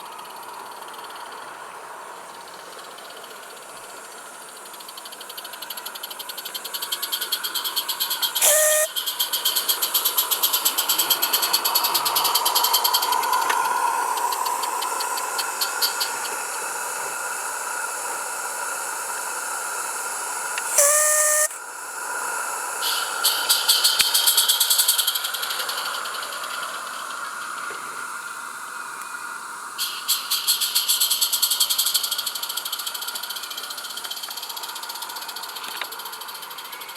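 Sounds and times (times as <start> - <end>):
train horn blasts: 8.4 - 8.9, 20.7 - 21.6.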